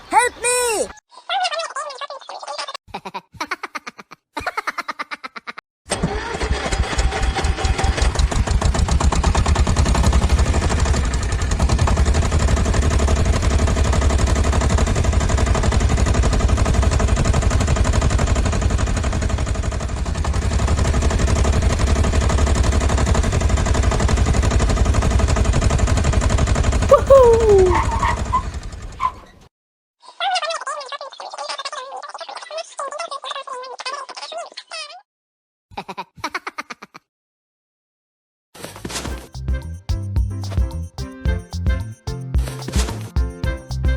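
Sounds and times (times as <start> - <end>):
engine sputtering and chugging: 5.9 - 29.3, 39.2 - 43.9.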